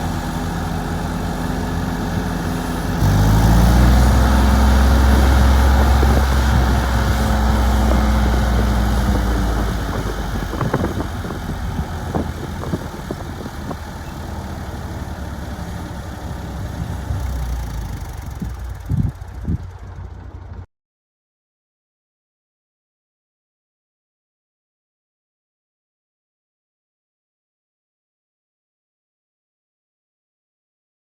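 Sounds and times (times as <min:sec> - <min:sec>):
tractor engine running: 0:00.0 - 0:20.7.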